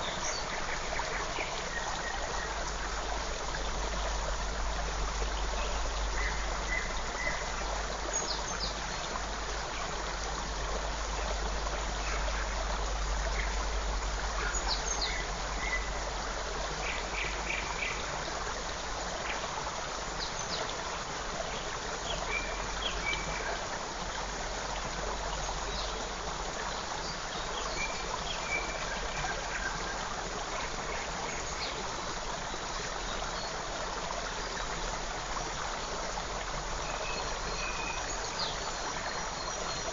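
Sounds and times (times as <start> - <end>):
creek flowing: 0.0 - 39.9
bird calls and chirps: 36.8 - 39.9.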